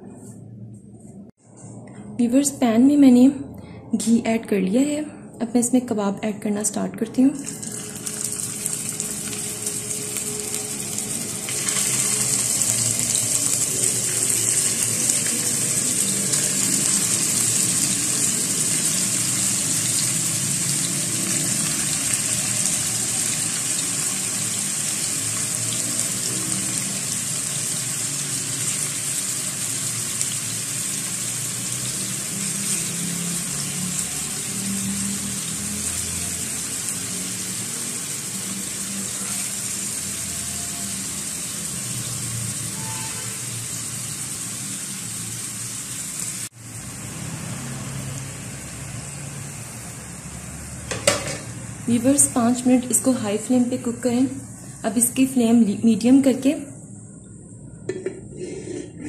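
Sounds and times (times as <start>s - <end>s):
meat sizzling in a pan: 7.4s - 52.1s.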